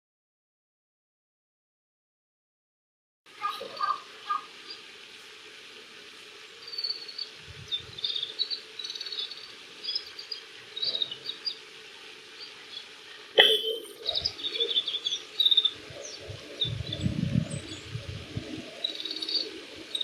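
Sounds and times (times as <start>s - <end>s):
bird twittering: 12.4s - 17.9s, 18.7s - 20.0s.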